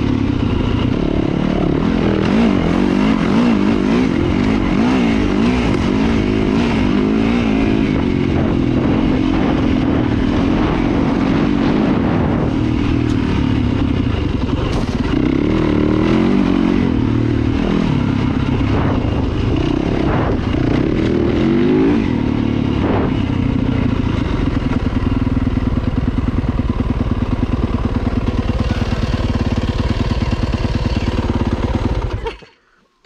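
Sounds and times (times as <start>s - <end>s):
dirt bike engine revving: 0.0s - 32.6s.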